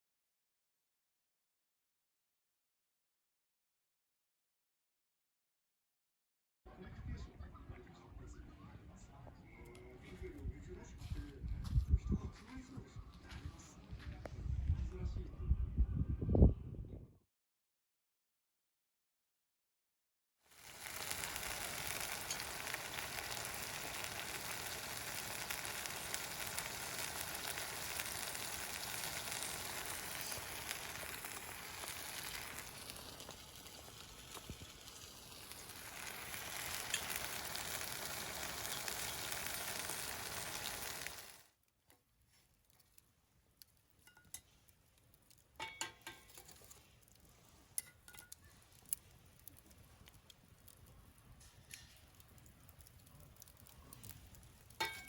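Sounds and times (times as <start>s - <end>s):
food sizzling in hot pan: 20.5s - 41.5s, 53.4s - 55.0s
wood fire crackling: 20.5s - 55.0s.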